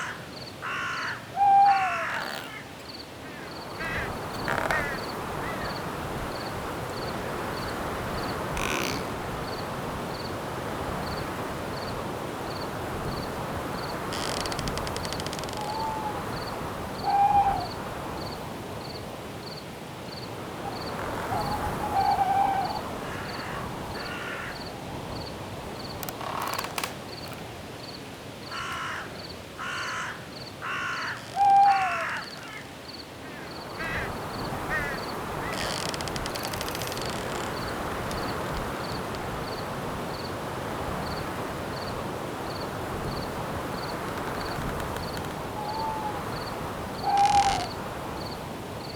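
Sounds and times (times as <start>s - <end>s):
bird cawing: 0.0s - 5.8s, 8.6s - 9.0s, 14.1s - 16.4s, 21.1s - 24.7s, 28.5s - 37.7s, 44.4s - 47.8s
crickets chirping: 0.0s - 48.9s
owl hooting: 0.7s - 2.6s, 15.6s - 16.4s, 17.0s - 17.8s, 21.3s - 23.6s, 30.7s - 32.6s, 45.5s - 46.4s, 47.0s - 47.8s
wind hiss: 2.0s - 29.6s, 30.4s - 48.9s.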